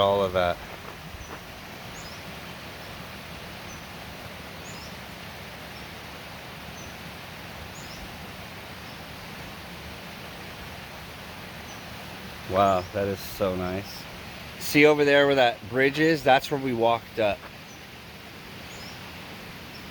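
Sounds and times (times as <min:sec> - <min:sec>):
steady outdoor hiss: 0:00.0 - 0:19.9
small bird chirping: 0:18.6 - 0:19.0.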